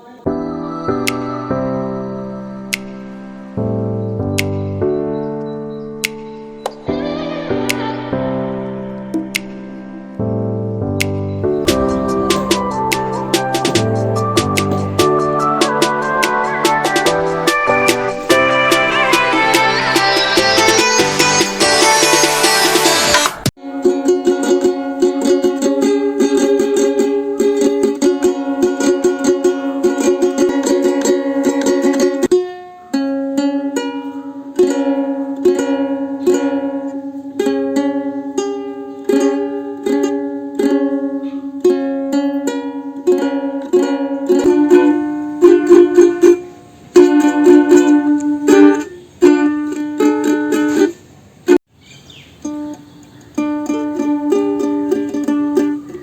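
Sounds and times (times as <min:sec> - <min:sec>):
ukulele strumming: 0:11.0 - 0:51.6, 0:52.4 - 0:56.0.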